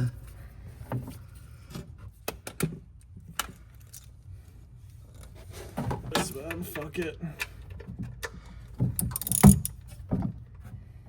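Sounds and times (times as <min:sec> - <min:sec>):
hand tools clicking and tapping: 0:07.4 - 0:09.9.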